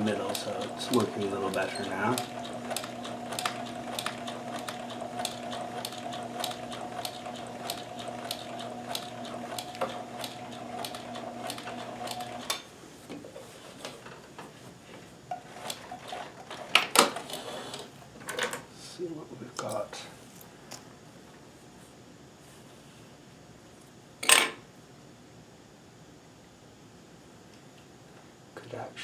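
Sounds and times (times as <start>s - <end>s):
sewing machine hum and clicking: 0.0s - 12.7s, 15.3s - 18.0s.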